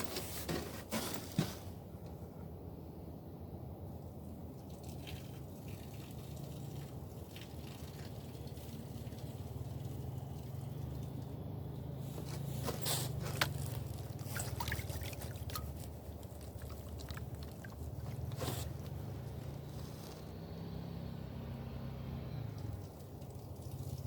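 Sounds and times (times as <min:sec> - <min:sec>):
water sloshing and dripping: 0:04.5 - 0:11.4, 0:12.2 - 0:20.0, 0:22.5 - 0:24.0.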